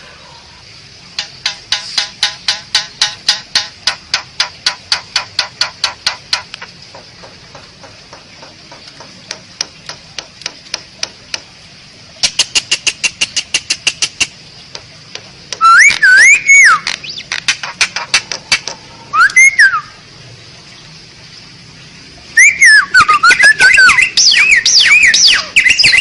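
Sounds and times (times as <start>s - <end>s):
starling clicking calls: 1.1s - 11.6s, 12.2s - 19.9s, 22.4s - 26.0s.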